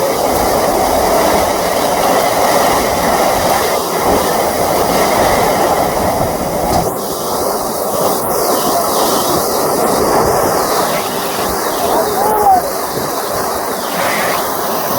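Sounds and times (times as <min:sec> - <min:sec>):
heavy rain pouring: 0:00.0 - 0:14.9.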